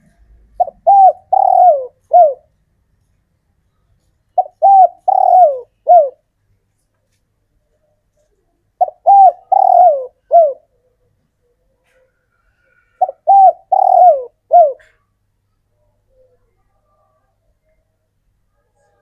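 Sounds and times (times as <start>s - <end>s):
dove cooing: 0.0s - 2.5s, 4.4s - 6.2s, 8.8s - 10.8s, 12.9s - 15.0s.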